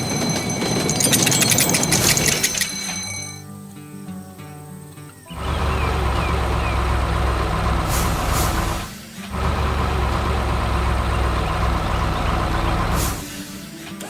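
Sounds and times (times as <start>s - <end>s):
heavy vehicle engine rumbling: 5.4s - 13.4s
short air hisses: 7.9s - 9.0s.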